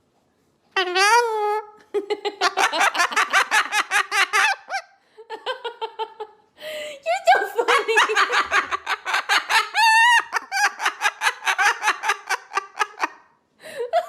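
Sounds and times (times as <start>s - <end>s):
parrot mimicking laughter: 0.8s - 4.9s, 7.7s - 13.2s.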